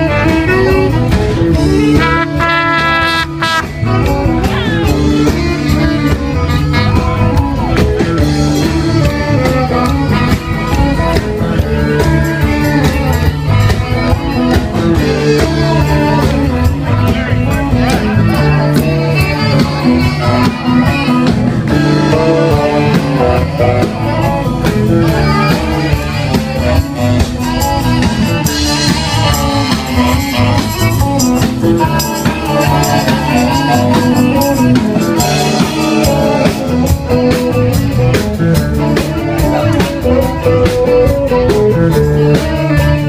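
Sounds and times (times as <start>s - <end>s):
live rock band playing: 0.0s - 43.0s.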